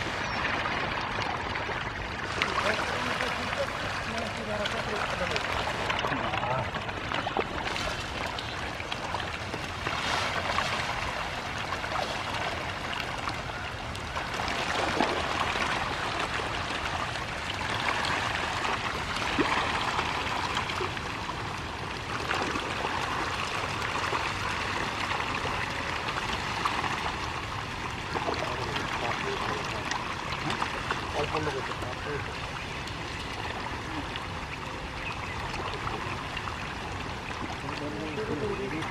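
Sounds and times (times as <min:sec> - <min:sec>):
small water slaps: 0:00.0 - 0:21.4, 0:28.0 - 0:34.2
fish splashing and slurping: 0:00.0 - 0:38.9.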